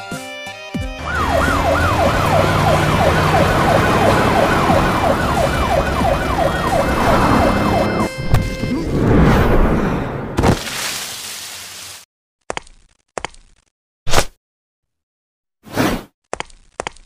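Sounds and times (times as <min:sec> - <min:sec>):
police siren: 0:01.0 - 0:08.9
vehicle engine and road noise: 0:01.0 - 0:09.1.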